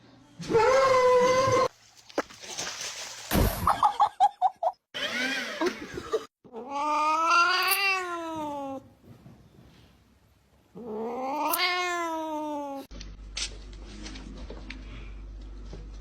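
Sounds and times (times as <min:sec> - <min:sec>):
cats meowing and yowling: 0:00.5 - 0:01.7, 0:06.5 - 0:08.8, 0:10.8 - 0:12.9
thump: 0:03.3 - 0:03.8.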